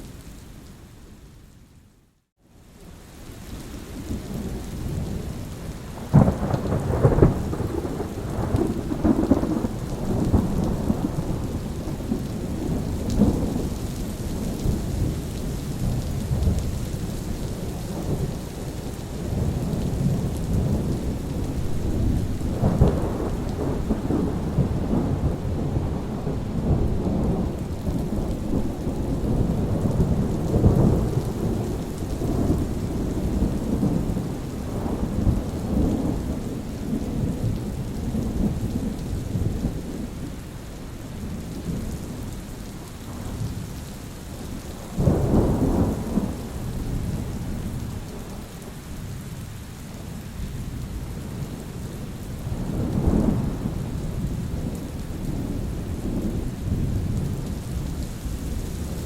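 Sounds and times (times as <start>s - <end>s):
steady rain: 0.0s - 59.0s
thunder rumbling: 4.0s - 40.3s, 44.3s - 48.9s.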